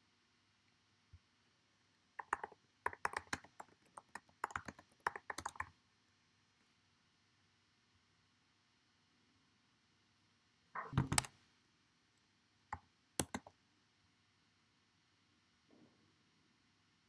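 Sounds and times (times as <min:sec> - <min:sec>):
keyboard key clicks: 0:02.2 - 0:05.7, 0:10.8 - 0:11.3, 0:13.2 - 0:13.5.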